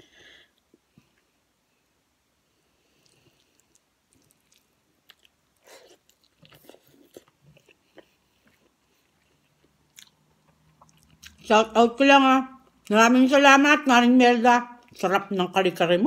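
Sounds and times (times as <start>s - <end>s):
soft chewing: 2.7s - 11.5s.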